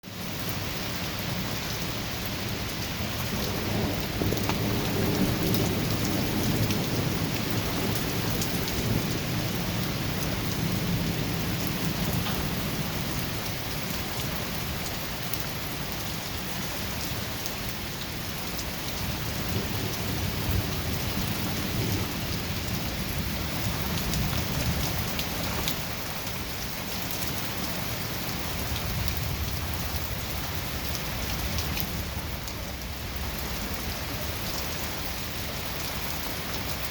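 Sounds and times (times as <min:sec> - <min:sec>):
steady rain: 0:00.0 - 0:36.9
low thunder rolling: 0:03.0 - 0:13.7, 0:19.0 - 0:26.0.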